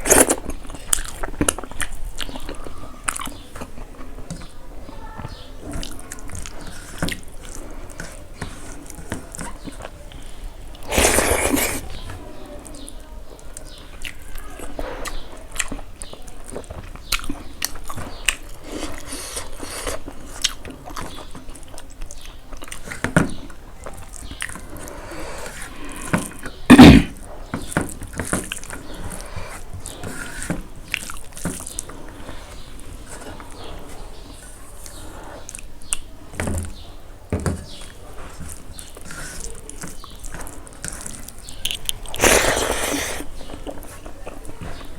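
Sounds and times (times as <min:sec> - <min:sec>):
close-up chewing: 0:00.0 - 0:34.1, 0:37.7 - 0:44.9.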